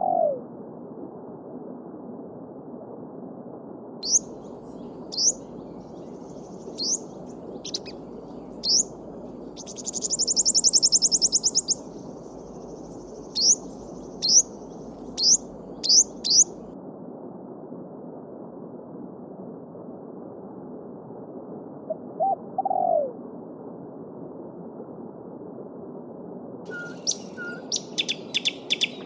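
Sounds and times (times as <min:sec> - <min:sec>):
songbird chirping: 0:04.0 - 0:16.7, 0:26.7 - 0:29.0
babbling stream: 0:06.6 - 0:11.8.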